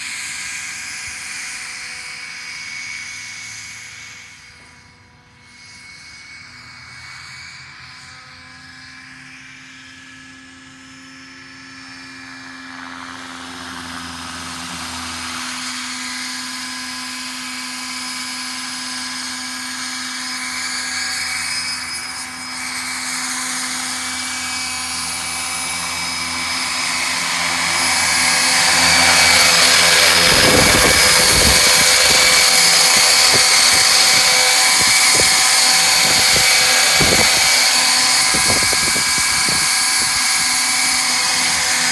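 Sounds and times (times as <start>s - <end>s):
rc helicopter rotor whine: 0.0s - 41.9s
wind buffeting microphone: 25.2s - 41.1s.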